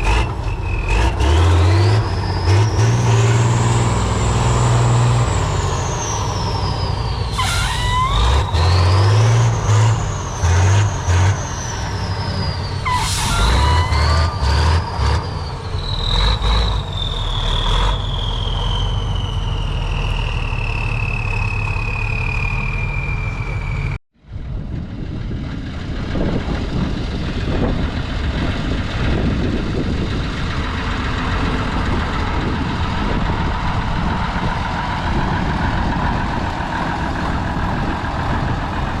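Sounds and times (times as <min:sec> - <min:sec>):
diesel engine revving: 0:00.0 - 0:24.0, 0:24.6 - 0:39.0
turbo whistle: 0:05.3 - 0:24.0
air hisses: 0:12.8 - 0:13.9.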